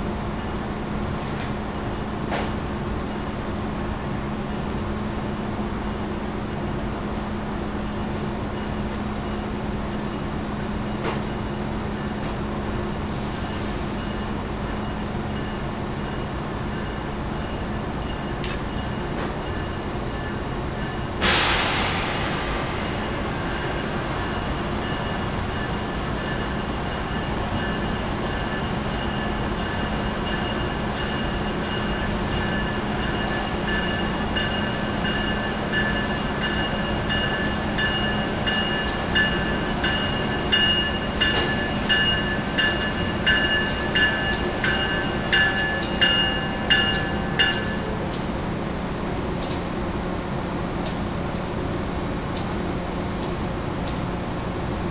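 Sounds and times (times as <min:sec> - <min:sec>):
locomotive bell ringing: 0:14.0 - 0:21.3, 0:23.5 - 0:48.3
loud air hiss: 0:21.2 - 0:24.1.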